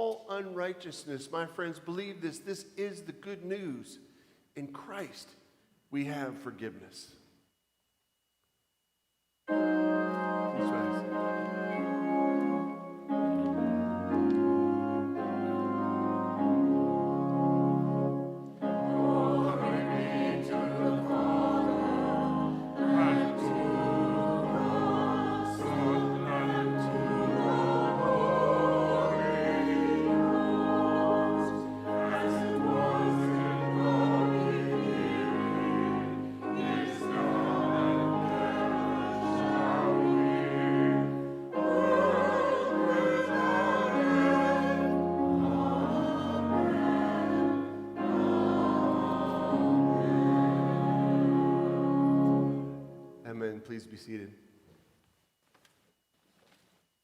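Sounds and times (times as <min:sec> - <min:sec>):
organ playing chords: 0:09.5 - 0:53.6
congregation and choir singing hymn: 0:09.5 - 0:54.1.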